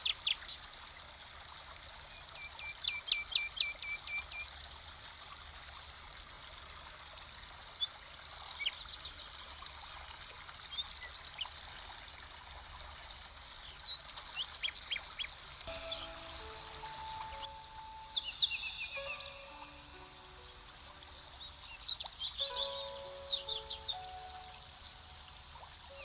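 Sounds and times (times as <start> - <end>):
running water: 0.0 - 26.0
songbirds singing: 13.1 - 26.0
high buzzy bird trill: 15.7 - 25.3.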